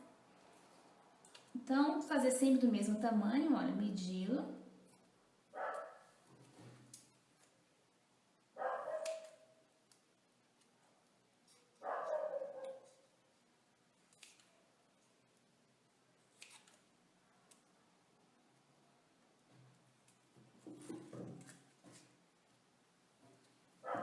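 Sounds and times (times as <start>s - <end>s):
dog barking: 5.5s - 6.2s, 8.6s - 9.5s, 11.8s - 12.9s.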